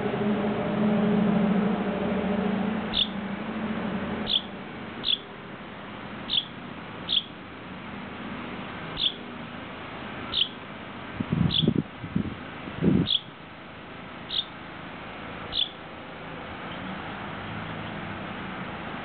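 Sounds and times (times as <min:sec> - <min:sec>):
loud low rumble: 0:00.0 - 0:04.7
fledgling bird peeping: 0:02.9 - 0:03.2, 0:04.3 - 0:05.3, 0:06.3 - 0:07.3, 0:09.0 - 0:09.2, 0:10.3 - 0:10.6, 0:11.5 - 0:11.8, 0:13.1 - 0:13.3, 0:14.3 - 0:14.5, 0:15.5 - 0:15.8.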